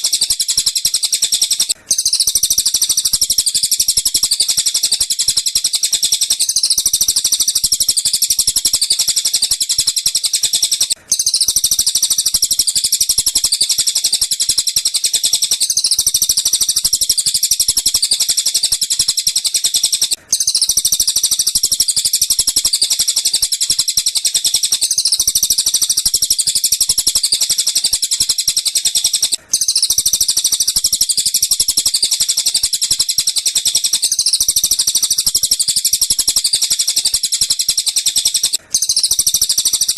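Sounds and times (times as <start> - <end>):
recorded bird chirps chattering: 0.0 - 39.9.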